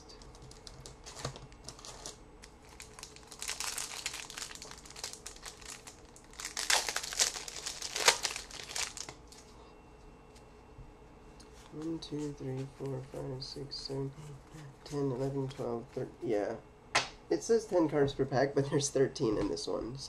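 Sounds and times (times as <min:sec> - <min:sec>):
wrapper crinkling: 0:00.1 - 0:09.5.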